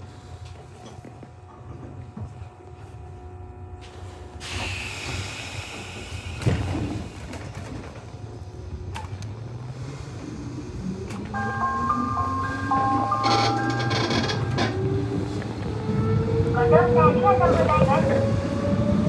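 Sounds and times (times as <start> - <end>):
electric train rumble: 0.0 - 19.0
chime melody: 11.4 - 14.5.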